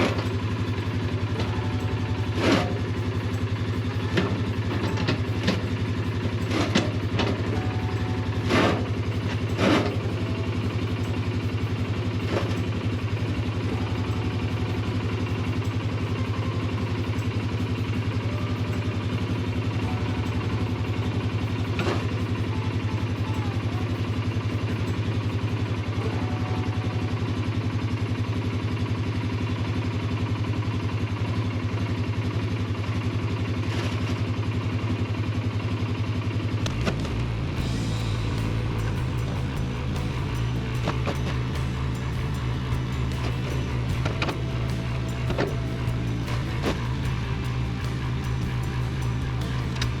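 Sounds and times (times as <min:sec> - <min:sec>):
atv engine idling: 0:00.0 - 0:50.0.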